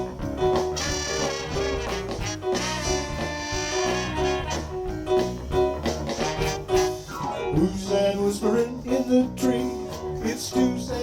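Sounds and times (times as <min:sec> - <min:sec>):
live soul band playing: 0:00.0 - 0:11.0
horn section: 0:00.6 - 0:05.3, 0:06.0 - 0:07.9.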